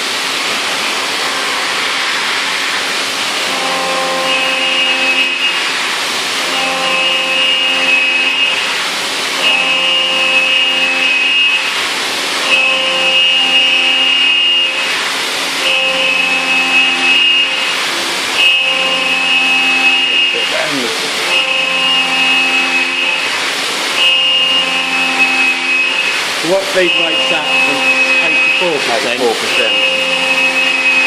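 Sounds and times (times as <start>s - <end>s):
steady rushing noise: 0.0s - 3.6s
milling cutter whine: 0.0s - 31.0s.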